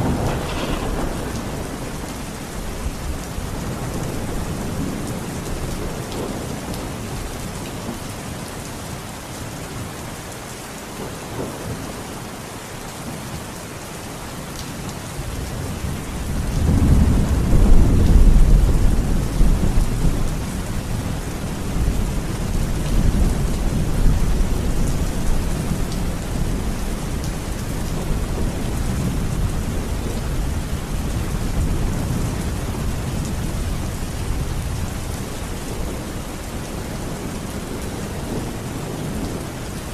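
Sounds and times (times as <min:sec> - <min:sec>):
thunder rumbling: 0:00.0 - 0:06.4
rain falling: 0:00.0 - 0:39.9.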